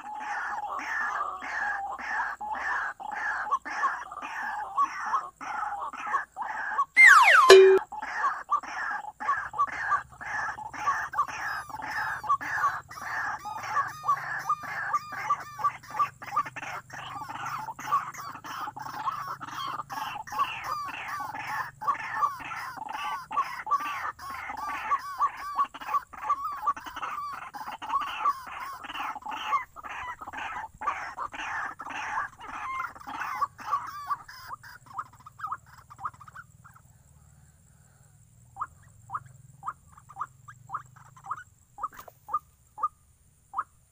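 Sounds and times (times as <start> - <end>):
waterhen chattering call: 0.0 - 36.8.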